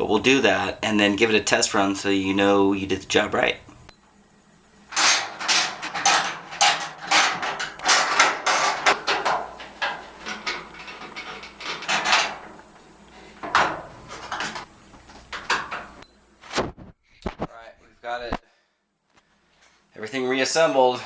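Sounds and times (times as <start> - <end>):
dryer parts knocking and scraping: 4.9 - 16.0.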